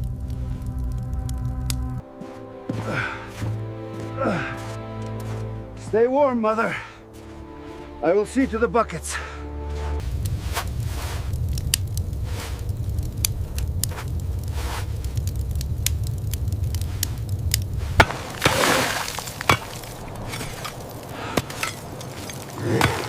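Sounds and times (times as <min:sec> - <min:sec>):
low rumble: 0:00.0 - 0:02.0, 0:10.0 - 0:22.6
crunching scrapes: 0:09.7 - 0:15.2, 0:16.8 - 0:23.0
ice knocking and cracking: 0:16.7 - 0:23.0.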